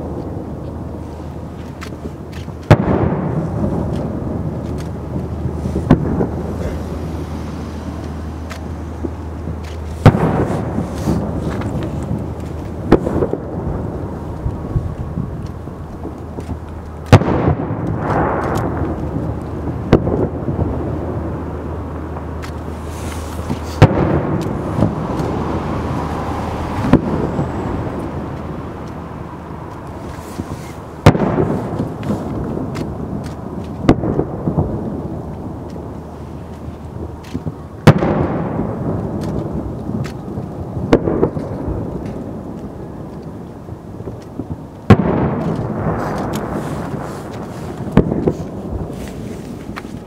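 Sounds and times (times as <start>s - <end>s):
firework bangs with rolling echo: 0.0s - 50.0s.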